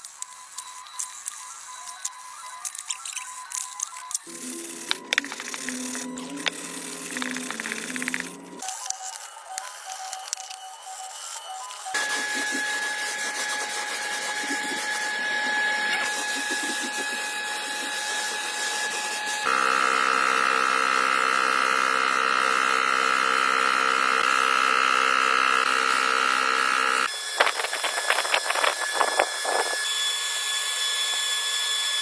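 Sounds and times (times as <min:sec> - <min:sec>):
power tool motor whining: 0:00.4 - 0:32.0
louder motor running: 0:04.3 - 0:08.6.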